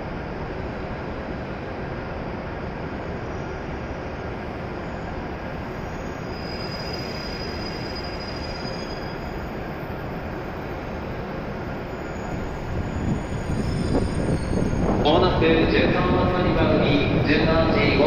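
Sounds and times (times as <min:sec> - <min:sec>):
train equipment hum and hiss: 0:00.0 - 0:08.2, 0:08.8 - 0:18.0.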